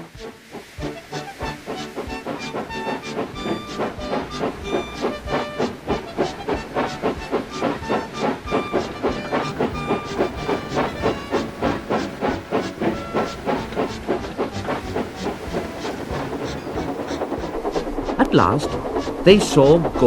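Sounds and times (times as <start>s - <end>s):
hissing steam: 0.0s - 20.0s
steam locomotive chuffing: 0.0s - 20.0s.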